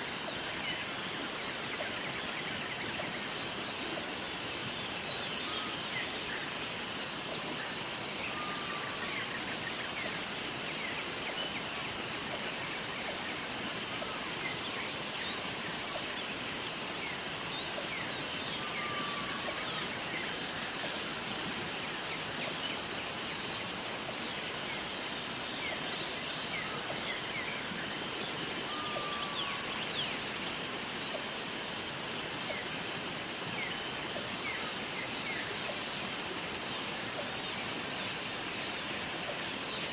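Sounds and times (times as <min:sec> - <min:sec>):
waterfall rushing: 0:11.0 - 0:39.9.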